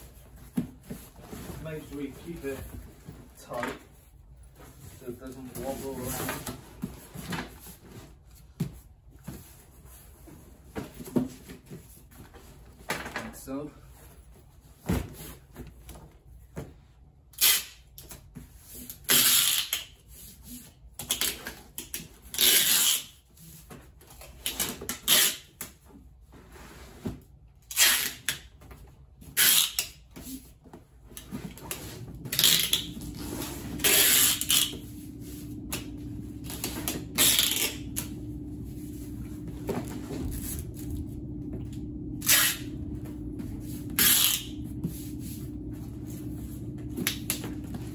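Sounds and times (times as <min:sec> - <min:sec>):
steady low hum: 0:00.0 - 0:11.1, 0:30.1 - 0:47.9
cardboard and tape rustling: 0:00.0 - 0:16.9, 0:18.0 - 0:47.9.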